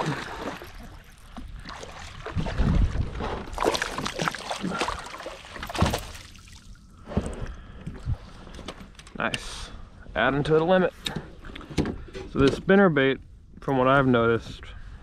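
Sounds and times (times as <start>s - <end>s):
water splashing: 0.0s - 6.8s.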